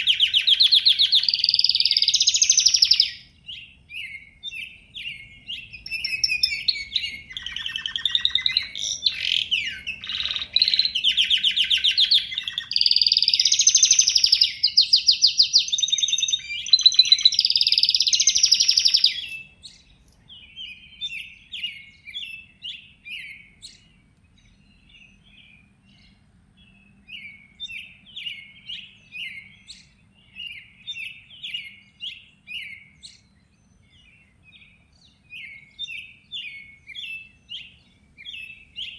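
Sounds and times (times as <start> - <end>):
birds singing and chirping: 0.0 - 38.9.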